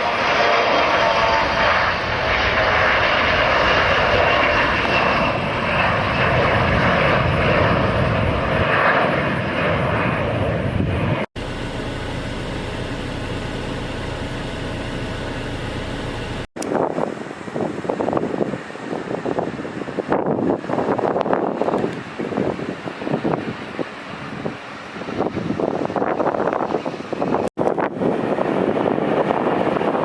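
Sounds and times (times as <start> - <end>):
jet engines passing close: 0.0 - 30.0
engine rumble: 0.1 - 19.2.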